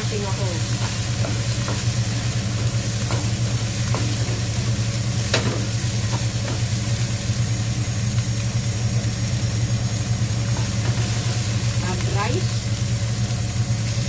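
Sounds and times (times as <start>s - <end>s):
food sizzling in oil: 0.0s - 14.0s
washing machine hum: 0.0s - 14.0s
spatula scraping and knocking pan: 0.6s - 6.9s.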